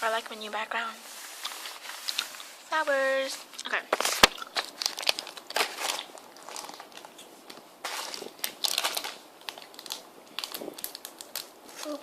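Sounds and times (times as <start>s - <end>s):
candy wrapper crinkling: 3.6s - 12.0s.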